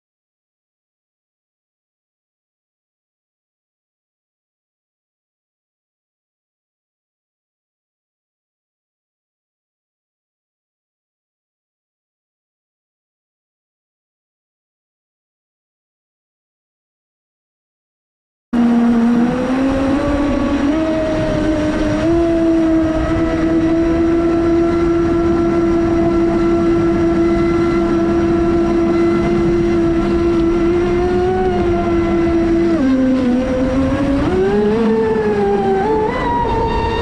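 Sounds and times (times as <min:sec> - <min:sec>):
electric motor whining: 0:18.6 - 0:37.0.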